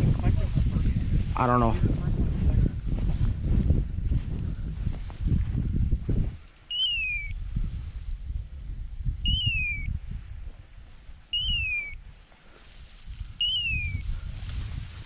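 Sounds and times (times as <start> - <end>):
footsteps through field cover: 0.0 - 9.2, 10.0 - 15.0
whistled call sliding down: 6.7 - 7.4, 9.2 - 9.9, 11.3 - 12.0, 13.4 - 14.1.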